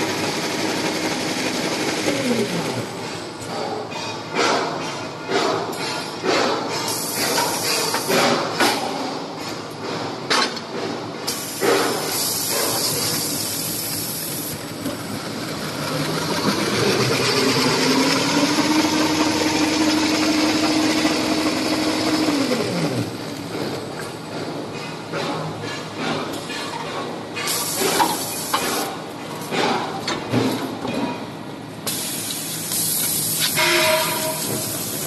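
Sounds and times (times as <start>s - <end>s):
machine clacks: 0.0s - 31.3s
machine motor whirring: 15.8s - 23.2s.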